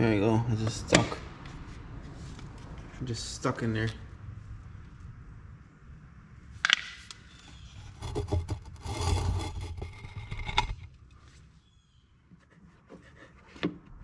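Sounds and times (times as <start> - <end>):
plastic scraping and rubbing: 7.4 - 11.3.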